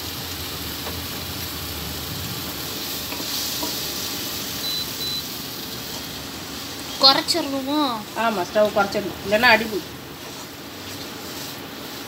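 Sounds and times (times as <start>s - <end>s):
food sizzling: 0.0s - 12.0s
spatula scraping pan: 2.8s - 3.8s, 8.2s - 12.0s
cooktop beeps: 3.0s - 5.6s.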